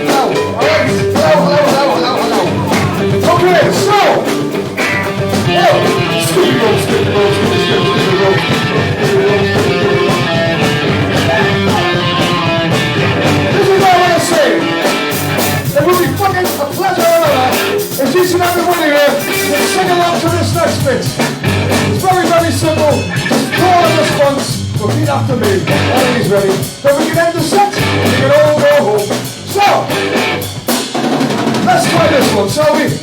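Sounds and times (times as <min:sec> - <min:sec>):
person singing: 0:00.0 - 0:04.4, 0:05.0 - 0:14.9, 0:21.9 - 0:29.2
live rock band playing: 0:00.0 - 0:33.0.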